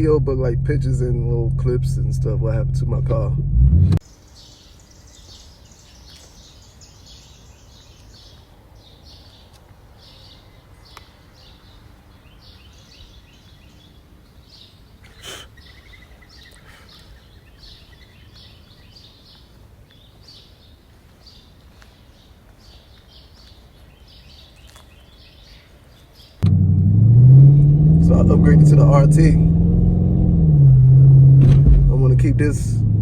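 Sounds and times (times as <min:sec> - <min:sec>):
faint birds chirping: 0:04.0 - 0:26.4.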